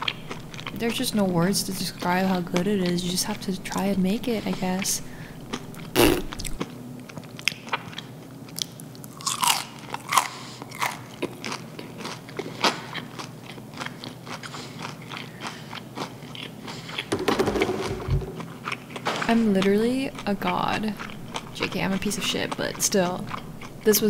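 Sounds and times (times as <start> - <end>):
crunchy fried chicken chewing: 0.0 - 1.0, 4.3 - 17.1.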